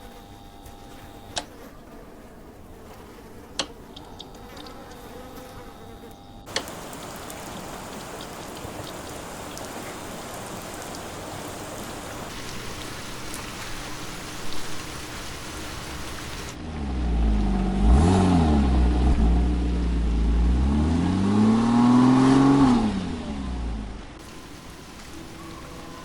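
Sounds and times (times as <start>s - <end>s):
faint steady hum: 3.4s - 16.6s, 23.8s - 26.0s
steady rain: 6.5s - 16.6s, 24.2s - 26.0s.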